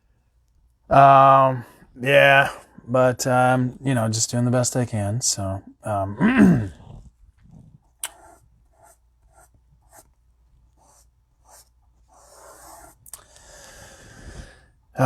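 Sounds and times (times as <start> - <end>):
soft rubbing noise: 6.8 - 13.0
faint scratching strokes: 7.0 - 13.1.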